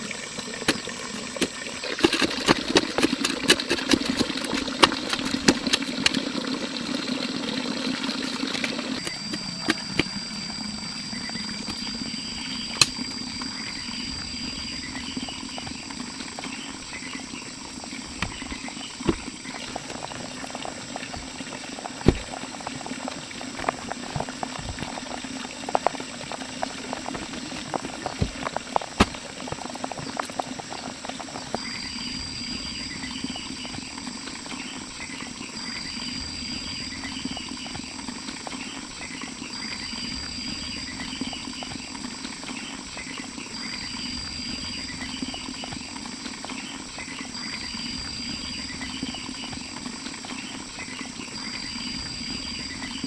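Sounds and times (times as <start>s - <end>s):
sharp crackling and popping: 0.0s - 34.9s
insects chirping: 0.0s - 53.0s.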